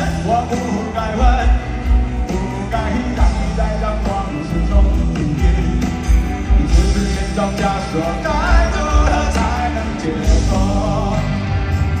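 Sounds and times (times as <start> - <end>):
live rock band: 0.0 - 12.0
person singing: 0.0 - 12.0.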